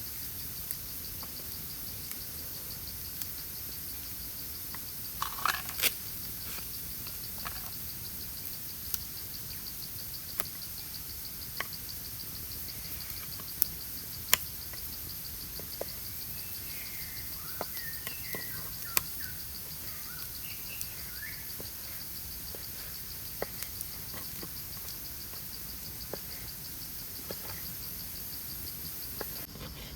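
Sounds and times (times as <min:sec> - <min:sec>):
insect trill: 0:00.0 - 0:29.9
bird chirping and calling: 0:16.3 - 0:21.5.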